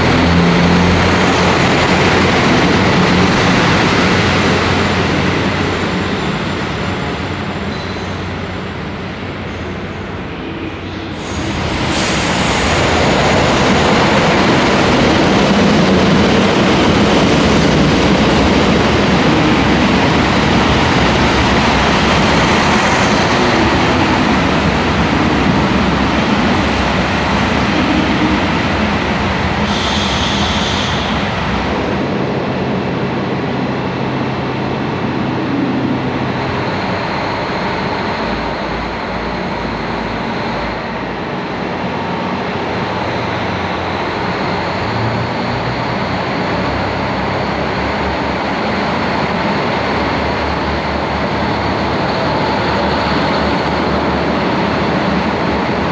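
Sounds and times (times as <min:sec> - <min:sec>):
diesel train engines running: 0:00.0 - 0:55.9
train wheel noise: 0:10.8 - 0:33.1
brief high-pitched sound: 0:11.1 - 0:14.7, 0:29.6 - 0:32.1.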